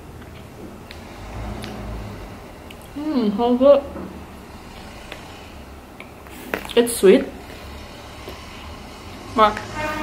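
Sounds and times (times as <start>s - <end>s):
quiet chewing: 4.6s - 5.4s.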